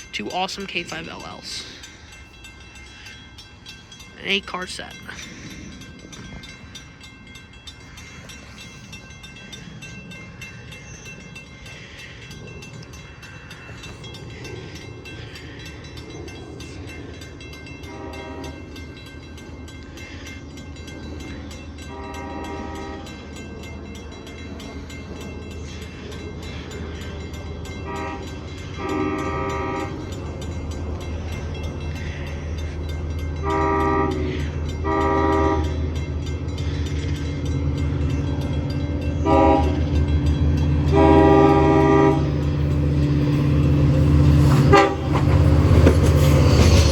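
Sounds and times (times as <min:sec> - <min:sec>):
train air horn blasts: 0:21.9 - 0:23.0, 0:27.9 - 0:29.9, 0:33.4 - 0:35.8, 0:39.2 - 0:39.8, 0:40.9 - 0:42.3, 0:44.6 - 0:45.2.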